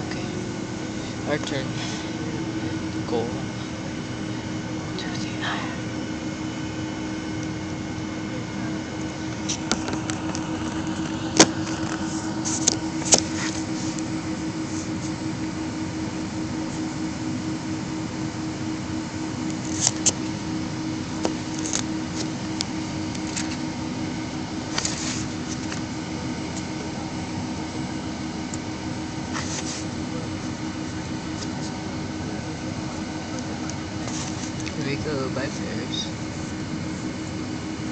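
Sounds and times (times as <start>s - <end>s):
jet engines idling: 0.0s - 37.9s.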